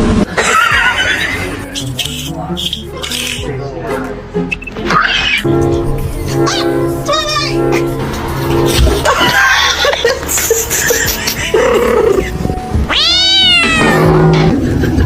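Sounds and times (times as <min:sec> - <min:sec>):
background music: 0:00.2 - 0:15.0
cat meowing: 0:12.0 - 0:14.3
cat yowling: 0:12.9 - 0:14.3.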